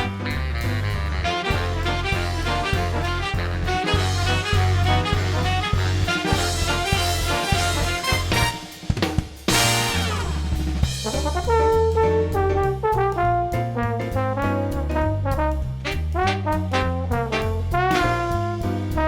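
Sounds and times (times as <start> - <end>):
steady bass line: 0.0 - 8.8, 9.5 - 19.0
brass band music: 0.0 - 19.0
drum kit: 0.0 - 19.0.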